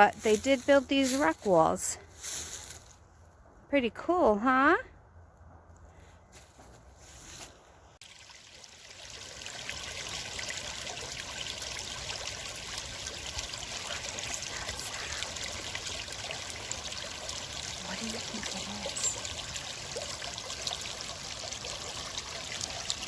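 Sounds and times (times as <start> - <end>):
water trickling: 8.0 - 23.0.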